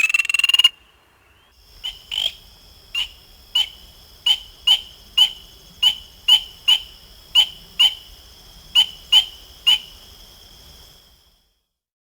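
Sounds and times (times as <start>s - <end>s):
frog peeping: 0.0s - 2.3s
faint high-pitched frog chorus: 0.0s - 11.8s.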